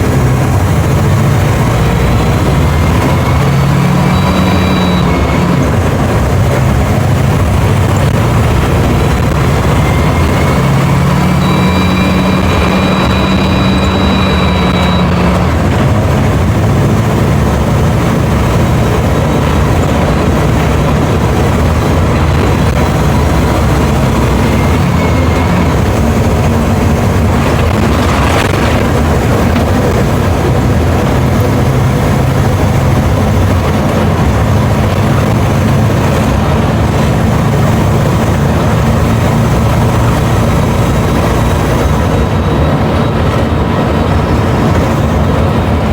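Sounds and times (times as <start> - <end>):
bus diesel engine running: 0.0 - 45.9
thin high whine: 9.7 - 15.6.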